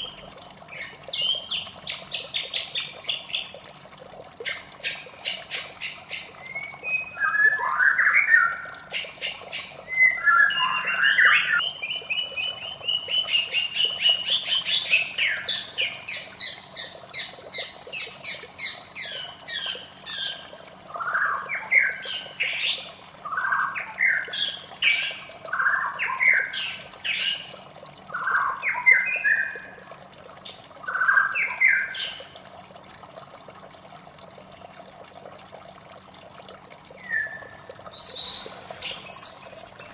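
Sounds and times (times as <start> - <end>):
running water hiss: 0.0 - 39.9
bird singing whistled phrases: 6.4 - 8.7, 9.9 - 13.3, 37.0 - 39.9.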